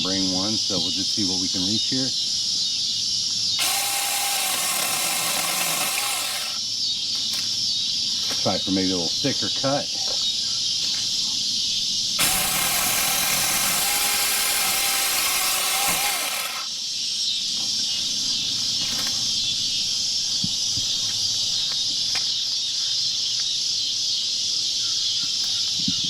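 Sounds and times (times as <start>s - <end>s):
cicadas buzzing: 0.0s - 26.0s
mini chainsaw cutting branch: 3.6s - 6.6s, 12.2s - 16.7s.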